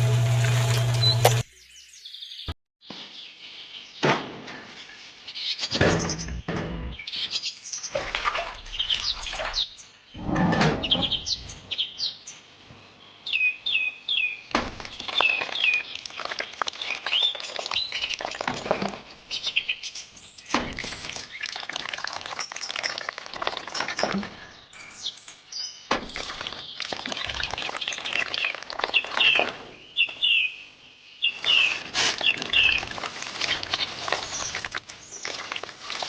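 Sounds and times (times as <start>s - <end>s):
small birds chirping: 13.1s - 21.7s, 22.3s - 36.0s.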